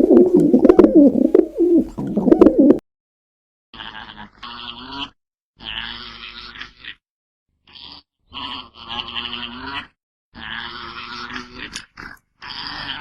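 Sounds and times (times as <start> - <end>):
farm animal drawn-out cries: 3.8 - 7.0, 7.6 - 13.0.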